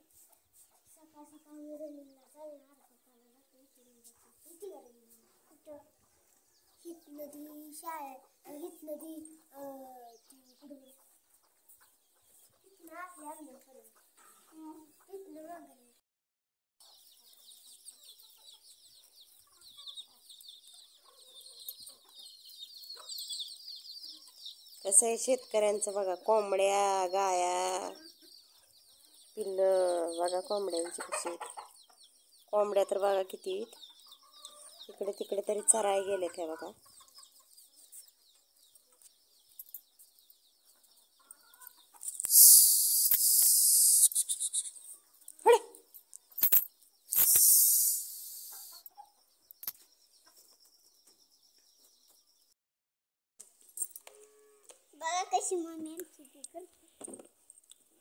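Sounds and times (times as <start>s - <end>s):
chicks peeping: 0.1s - 15.5s, 16.8s - 52.4s
hens clucking softly: 30.7s - 32.0s
loud high hiss: 42.2s - 44.7s, 47.1s - 48.8s.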